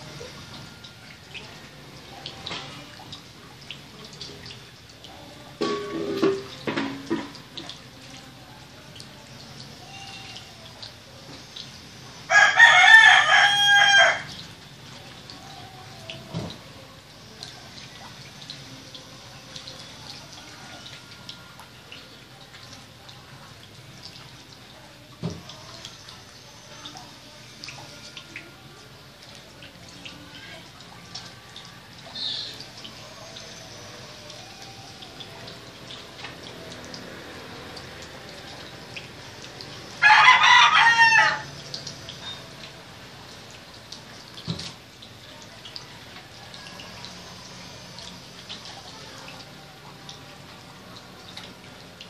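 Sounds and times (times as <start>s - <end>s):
small clicks and drips: 0.0s - 52.0s.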